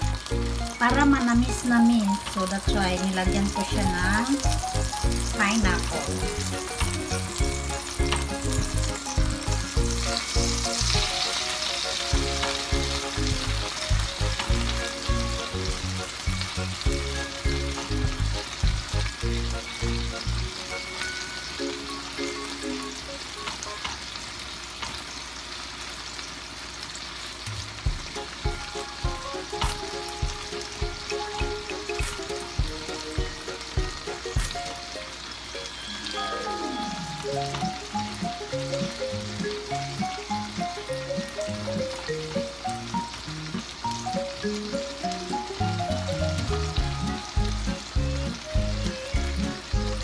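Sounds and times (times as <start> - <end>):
food sizzling in a pan: 0.0 - 50.0
music with a low beat: 2.7 - 11.2, 12.1 - 20.5, 27.6 - 34.7, 46.2 - 50.0.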